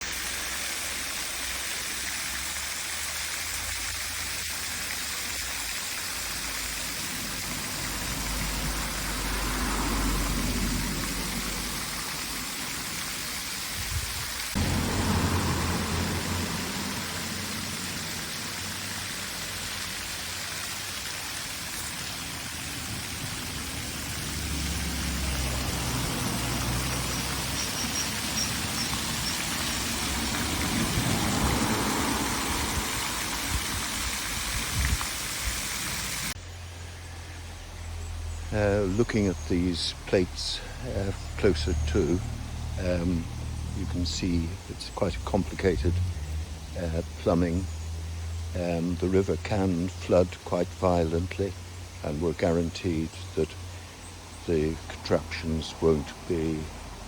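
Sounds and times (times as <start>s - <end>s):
river water rushing: 1.2s - 36.4s
wind buffeting microphone: 13.8s - 15.3s, 32.4s - 35.6s.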